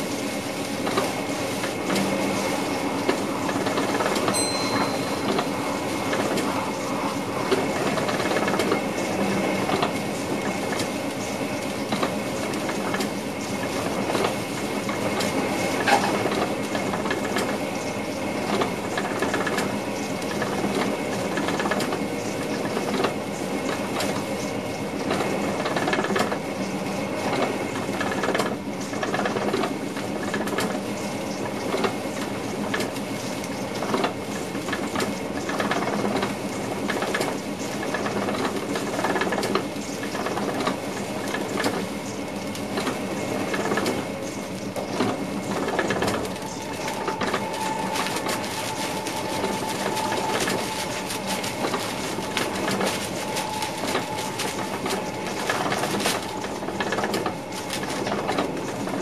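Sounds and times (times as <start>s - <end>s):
train wheels rumbling on rail: 0.0s - 59.0s
faint steady tones: 4.2s - 8.5s, 44.2s - 59.0s
short high beep: 4.4s - 5.8s.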